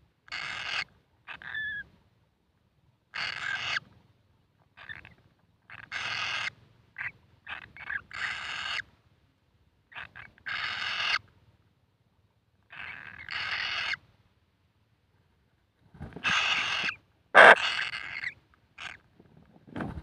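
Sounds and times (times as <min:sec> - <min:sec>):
chicks chirping: 0:17.4 - 0:17.6
chicks hissing buzzy calls: 0:17.4 - 0:17.6.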